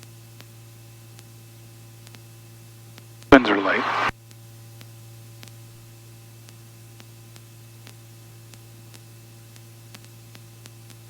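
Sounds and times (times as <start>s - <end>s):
helicopter hum through intercom: 3.4s - 4.1s.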